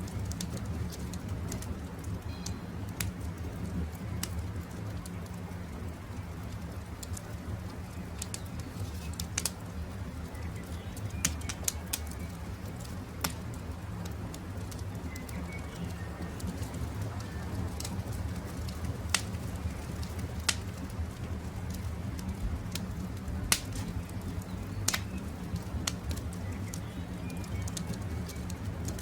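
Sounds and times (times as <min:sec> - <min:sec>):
campfire crackling: 0:00.0 - 0:29.0
faint birds calling: 0:08.1 - 0:18.1.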